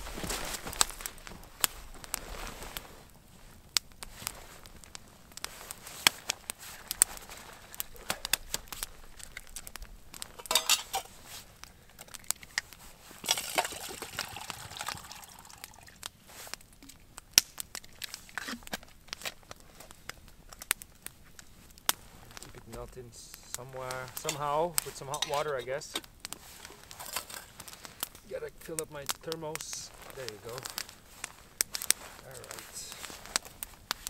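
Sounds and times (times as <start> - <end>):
camp cookware clinking: 10.2 - 11.2, 13.2 - 15.9, 23.8 - 28.8.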